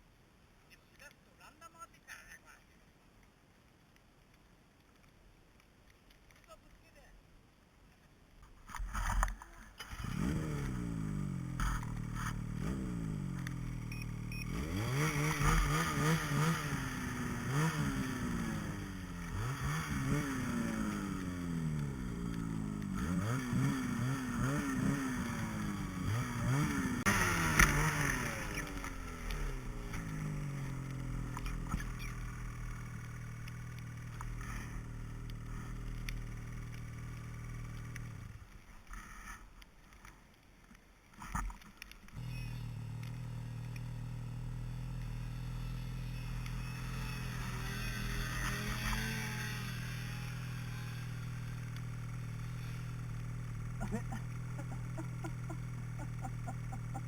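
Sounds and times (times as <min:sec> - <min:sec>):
vehicle engine revving: 0:09.9 - 0:38.4, 0:42.2 - 0:57.0.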